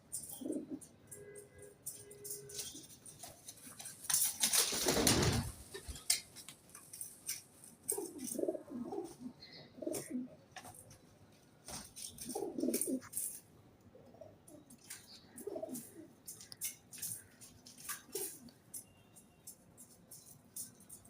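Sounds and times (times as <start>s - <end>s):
pigeons cooing: 0.2s - 0.9s, 7.8s - 10.4s, 12.1s - 13.3s, 14.0s - 16.4s, 17.9s - 18.5s.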